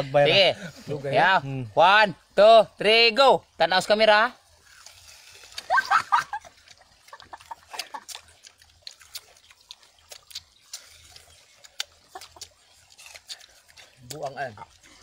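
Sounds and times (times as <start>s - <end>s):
people chewing wet smacks: 4.5s - 15.0s.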